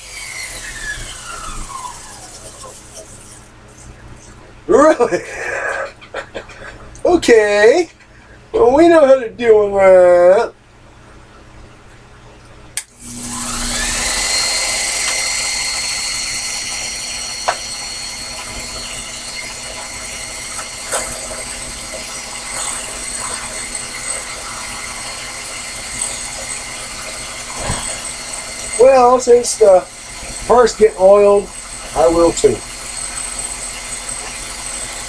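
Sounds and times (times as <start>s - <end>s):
lathe motor whining: 0.0s - 4.5s, 12.8s - 35.0s.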